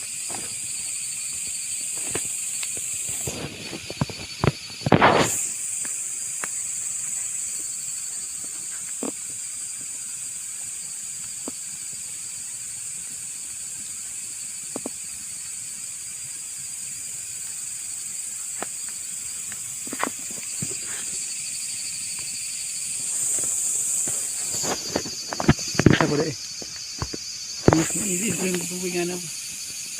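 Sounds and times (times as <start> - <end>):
high-pitched hiss: 0.0 - 29.9
bonfire pops and crackles: 1.9 - 6.7, 23.2 - 28.6.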